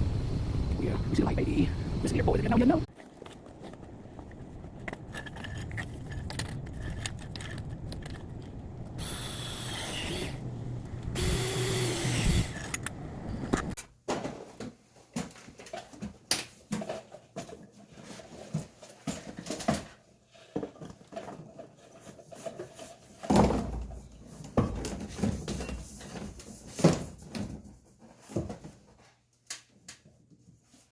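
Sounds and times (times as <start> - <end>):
knocks and clatters: 2.9 - 9.0
power tool running: 8.8 - 13.8.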